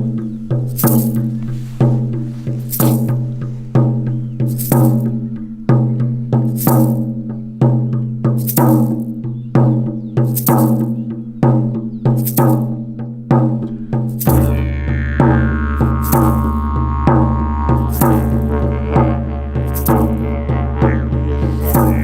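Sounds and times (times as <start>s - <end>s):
slow percussion beat with rattle: 0.0s - 22.0s
low drone: 14.2s - 22.0s.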